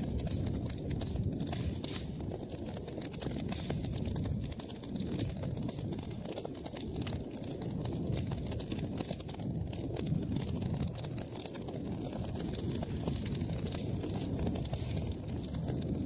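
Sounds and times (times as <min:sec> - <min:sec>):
fire crackling and popping: 0:00.0 - 0:16.0
low rumble of flames: 0:00.0 - 0:16.0.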